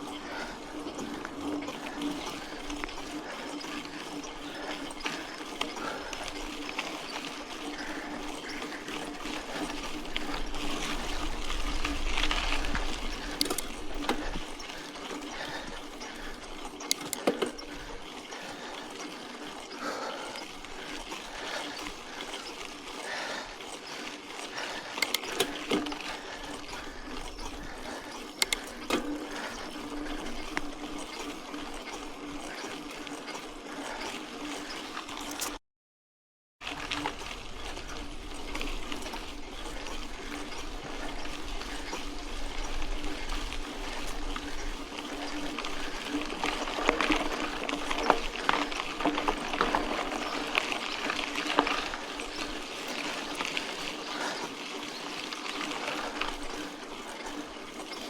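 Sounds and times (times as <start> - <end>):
bike tyres on gravel: 0.0 - 35.6, 36.6 - 58.0
bike knocks and rattles: 7.5 - 18.0.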